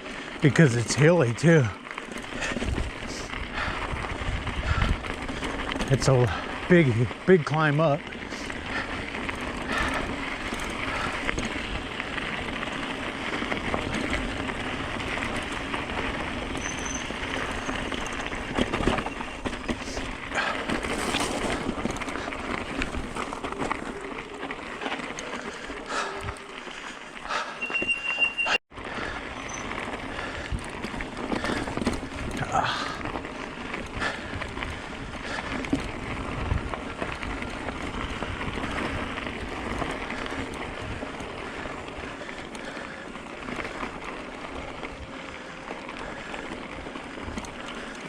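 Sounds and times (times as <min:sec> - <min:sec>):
bike rattling over stones: 0:00.0 - 0:48.0
high brake squeal: 0:16.5 - 0:18.3, 0:27.5 - 0:28.6, 0:29.3 - 0:29.8.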